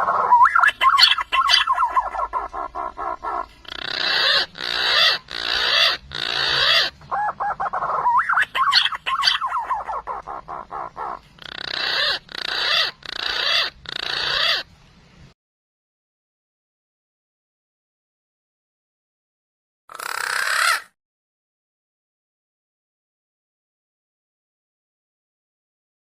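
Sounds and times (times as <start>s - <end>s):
pigeon whistled calls: 0.0s - 14.6s
loud rough pigeon notes: 0.0s - 14.7s.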